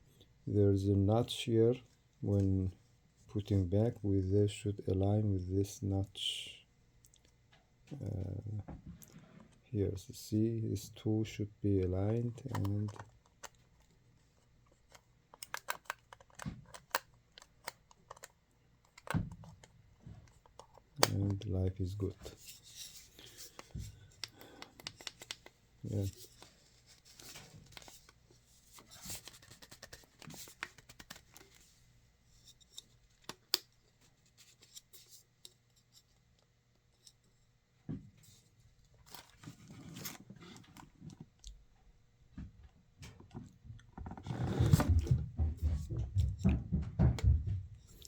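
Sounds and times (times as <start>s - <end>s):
small plastic parts clicking: 12.4s - 13.9s, 14.7s - 21.4s, 22.2s - 31.6s
plastic clicks and taps: 12.5s - 13.6s.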